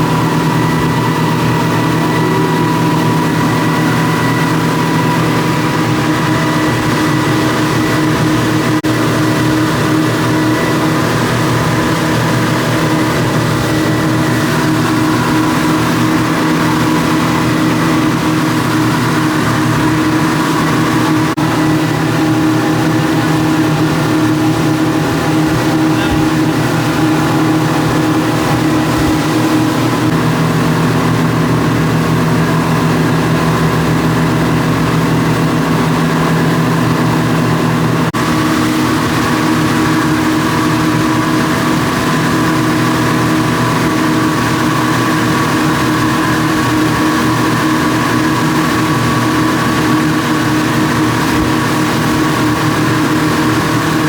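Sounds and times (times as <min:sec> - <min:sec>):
rushing water: 0:00.0 - 0:54.0
speedboat engine running: 0:00.0 - 0:54.0.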